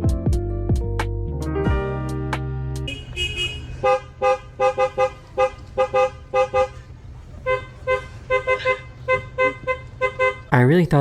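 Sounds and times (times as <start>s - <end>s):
horn honking: 2.7s - 11.0s.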